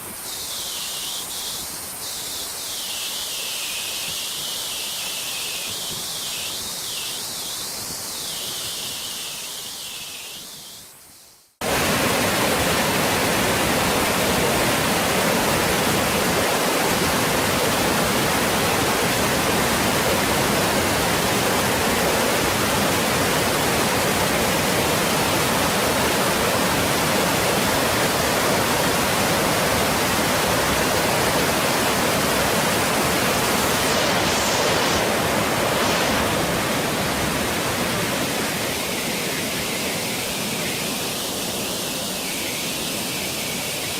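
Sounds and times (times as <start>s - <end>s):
water falling hiss: 0.0s - 43.9s
waterfall roaring: 11.6s - 43.9s.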